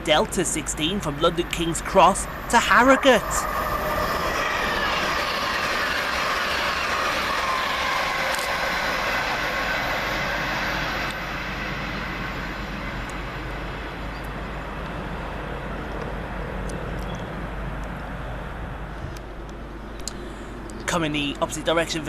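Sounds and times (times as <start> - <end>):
train passing: 0.0 - 22.0
falling whining tones: 1.1 - 13.2.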